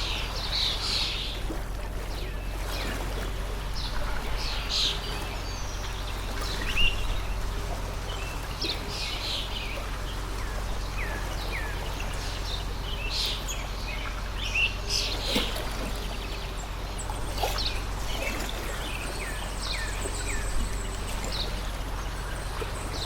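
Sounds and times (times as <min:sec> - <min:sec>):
small birds chirping: 0:00.0 - 0:23.0
stream flowing: 0:00.0 - 0:23.0
whistled bird calls: 0:10.4 - 0:23.0.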